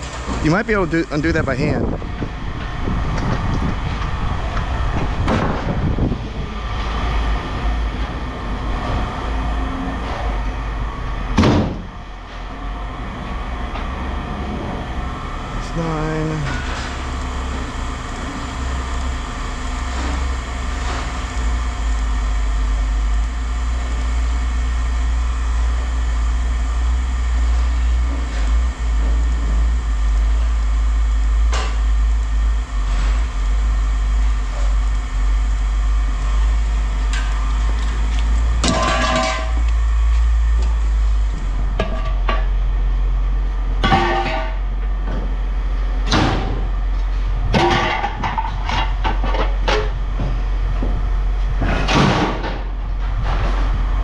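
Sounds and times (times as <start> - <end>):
low machine rumble: 0.0 - 54.0
metal clatter: 38.6 - 39.6, 43.8 - 44.6, 47.5 - 50.0
scrap metal clanking: 38.6 - 39.6, 43.8 - 44.6.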